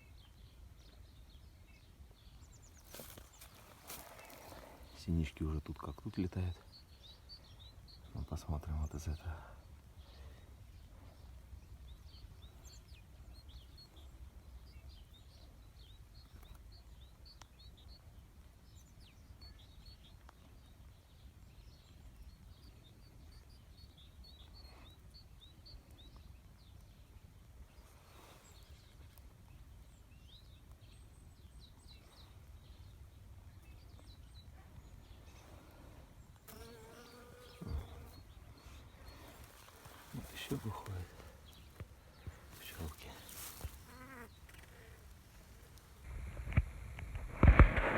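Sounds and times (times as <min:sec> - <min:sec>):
faint buzzing of bees: 0:02.9 - 0:05.4, 0:35.2 - 0:46.9.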